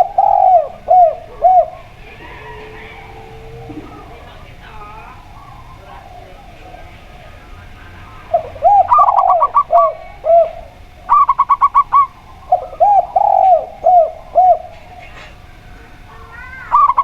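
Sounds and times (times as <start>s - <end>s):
short high dove coos: 0.0s - 6.9s
low drawn-out dove coos: 0.0s - 17.0s.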